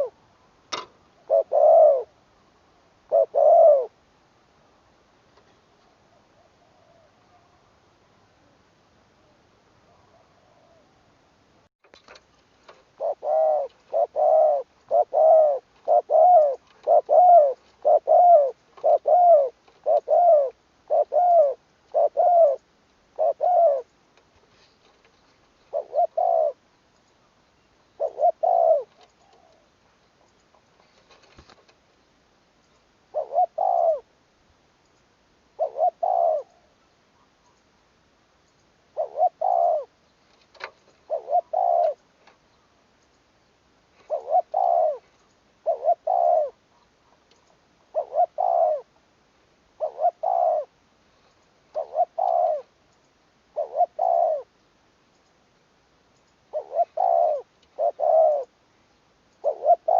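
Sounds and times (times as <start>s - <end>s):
dove cooing: 0.0s - 0.2s, 1.2s - 2.2s, 3.0s - 4.0s, 5.9s - 7.7s, 9.2s - 11.1s, 12.9s - 23.9s, 25.6s - 26.6s, 27.9s - 29.7s, 33.1s - 34.1s, 35.6s - 37.3s, 38.9s - 40.0s, 41.0s - 42.0s, 44.0s - 47.2s, 47.8s - 49.0s, 49.7s - 50.8s, 51.7s - 52.8s, 53.5s - 54.5s, 56.5s - 58.6s, 59.4s - 59.9s.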